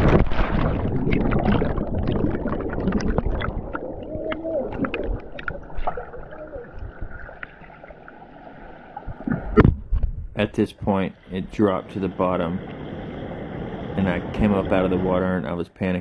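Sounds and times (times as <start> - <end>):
underwater clicks: 0.0 - 7.9
underwater gurgling and bubbling: 0.0 - 10.1, 10.9 - 15.4
faint steady hum: 0.8 - 16.0.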